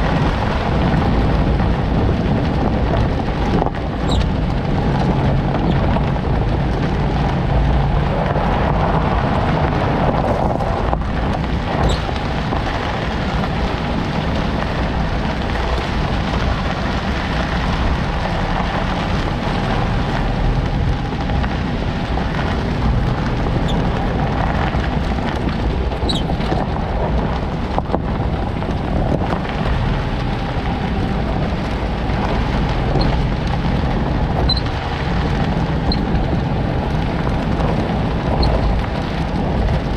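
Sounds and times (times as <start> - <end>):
vehicle road noise: 0.0 - 39.9
faint high suspension squeaks: 4.0 - 4.3, 26.1 - 26.3, 34.4 - 34.7.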